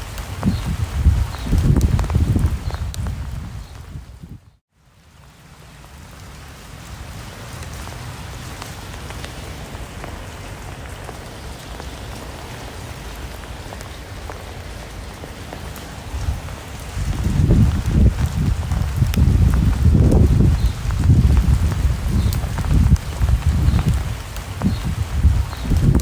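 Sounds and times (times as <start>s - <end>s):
low gusting rumble: 0.0s - 4.6s, 15.6s - 26.0s
steady rain falling: 0.0s - 26.0s.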